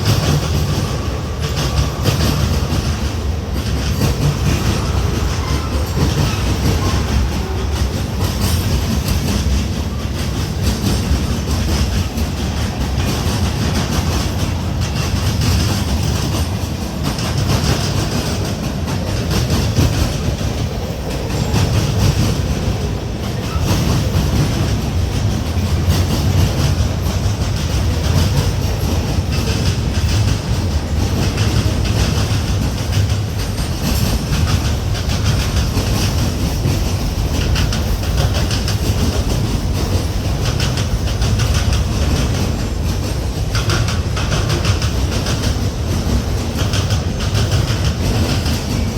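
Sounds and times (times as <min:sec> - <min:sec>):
freight train wheels clicking: 0:00.0 - 0:48.9.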